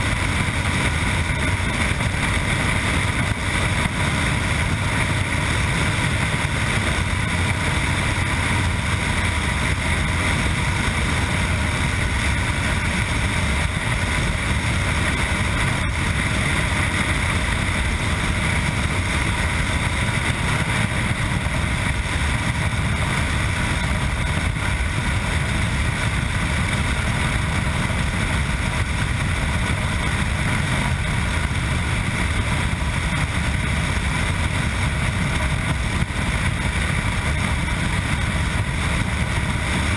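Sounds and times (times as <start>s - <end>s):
motorcycle engine riding: 0.0s - 39.9s
wind rush on microphone: 0.0s - 39.9s.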